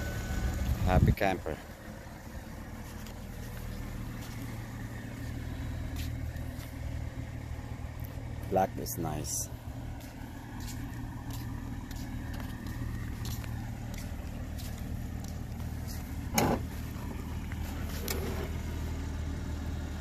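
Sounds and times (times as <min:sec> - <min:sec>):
car engine idling: 0:00.0 - 0:20.0
loud thump: 0:16.3 - 0:16.7.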